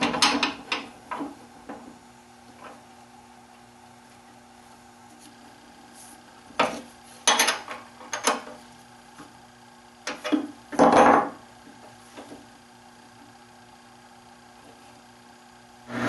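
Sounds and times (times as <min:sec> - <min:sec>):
faint steady hum: 0:00.0 - 0:16.0
objects clattering on workbench: 0:06.5 - 0:08.6, 0:10.1 - 0:11.4.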